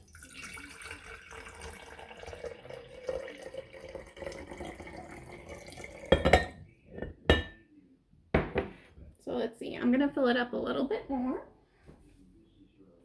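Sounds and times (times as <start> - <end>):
water filling a glass jar: 0.0 - 6.6
glass dishware knocks: 6.1 - 7.6, 8.4 - 8.8.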